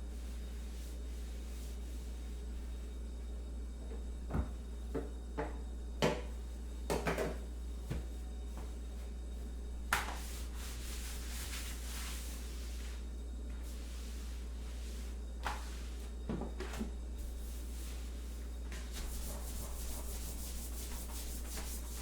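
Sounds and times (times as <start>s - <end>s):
steady low hum: 0.0s - 22.0s
kitchen things knocking and clicking: 6.9s - 7.4s.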